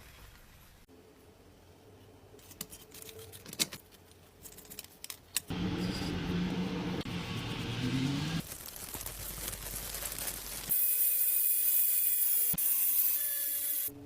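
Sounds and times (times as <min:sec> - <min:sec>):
steady sound with low hum: 0:05.5 - 0:08.5.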